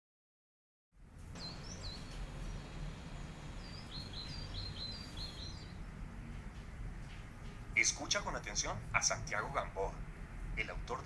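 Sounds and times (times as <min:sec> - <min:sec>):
low background rumble: 0:01.0 - 0:11.0
birds chirping: 0:01.3 - 0:10.0.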